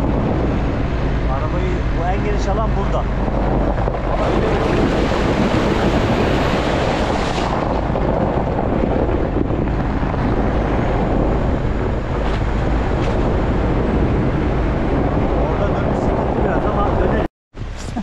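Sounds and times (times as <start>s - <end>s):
vehicle low rumble: 0.0s - 18.0s
wind rushing over microphone: 0.0s - 18.0s.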